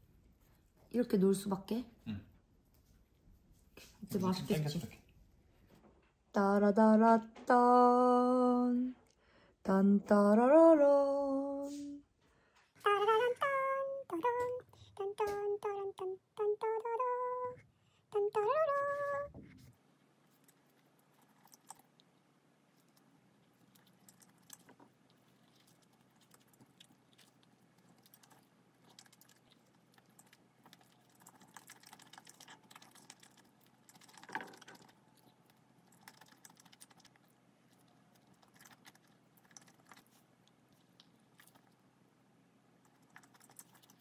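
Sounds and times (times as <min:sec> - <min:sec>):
chewing with wet mouth clicks: 0:20.3 - 0:22.2, 0:22.8 - 0:41.9, 0:42.8 - 0:44.0.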